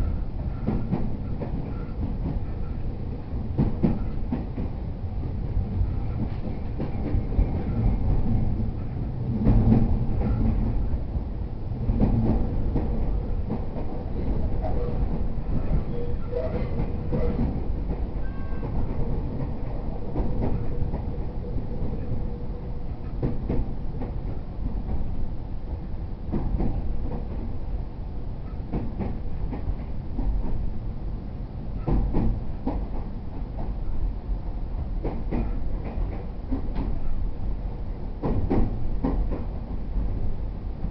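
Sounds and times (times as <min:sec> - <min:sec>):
train wheels rumbling on rail: 0:00.0 - 0:40.9
clicks from rail joints: 0:28.4 - 0:30.6, 0:31.8 - 0:33.7, 0:35.0 - 0:37.2, 0:38.2 - 0:39.6.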